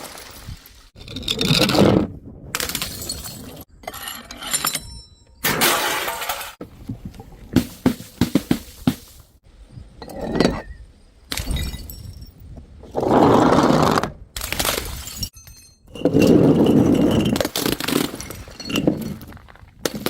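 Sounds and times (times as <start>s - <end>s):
glass bottles smashing: 2.7s - 3.7s, 5.4s - 6.6s, 14.9s - 19.3s.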